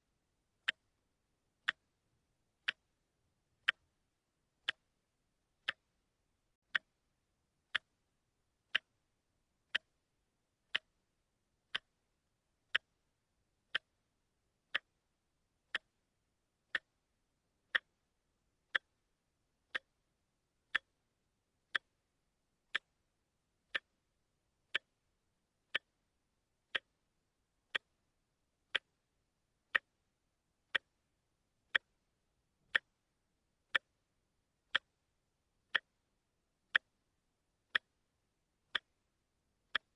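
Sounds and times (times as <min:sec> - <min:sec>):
watch ticking: 0:00.6 - 0:01.0, 0:01.6 - 0:02.0, 0:02.6 - 0:04.0, 0:04.6 - 0:05.0, 0:05.6 - 0:06.0, 0:06.6 - 0:07.0, 0:07.7 - 0:08.0, 0:08.6 - 0:09.1, 0:09.7 - 0:11.0, 0:11.6 - 0:15.0, 0:15.6 - 0:16.0, 0:16.6 - 0:19.0, 0:19.7 - 0:21.0, 0:21.7 - 0:22.1, 0:22.7 - 0:23.1, 0:23.7 - 0:24.1, 0:24.7 - 0:27.1, 0:27.7 - 0:33.1, 0:33.7 - 0:35.1, 0:35.7 - 0:39.9.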